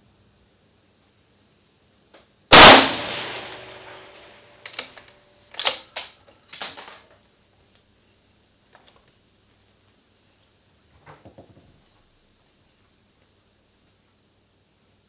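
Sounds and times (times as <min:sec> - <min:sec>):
rifle shot: 0:02.5 - 0:04.9
short metallic clacks: 0:03.1 - 0:07.0.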